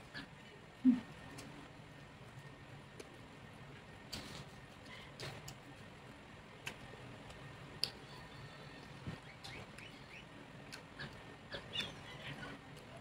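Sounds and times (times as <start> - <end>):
mouth smacks and clicks: 6.6 - 8.0, 10.6 - 12.0.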